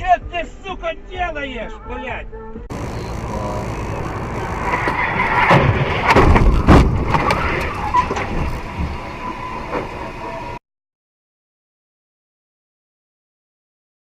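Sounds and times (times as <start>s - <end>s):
loud crashing impacts: 2.7s - 9.0s
vehicle engine and tyre noise: 2.7s - 10.6s.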